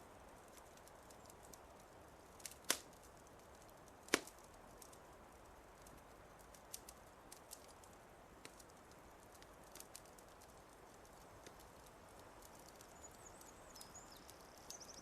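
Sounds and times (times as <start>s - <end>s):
wood fire crackling: 0.0s - 15.0s
sharp pops of fire: 0.3s - 15.0s.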